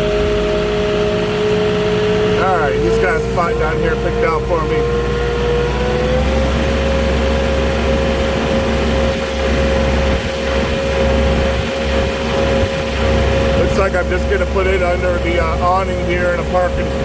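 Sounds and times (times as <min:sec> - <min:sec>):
forklift engine rumble and whine: 0:00.0 - 0:17.0.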